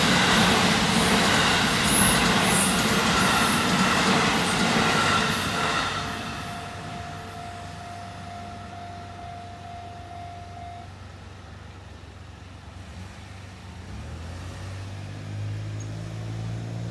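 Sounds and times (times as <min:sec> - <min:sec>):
steady high tone: 0:00.0 - 0:11.0
vehicle engines humming: 0:00.0 - 0:16.9.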